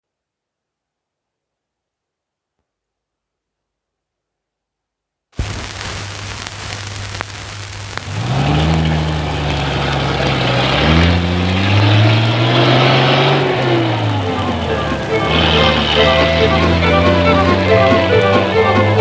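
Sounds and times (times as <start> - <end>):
record hiss: 5.4 - 19.0
truck engine revving: 8.0 - 19.0.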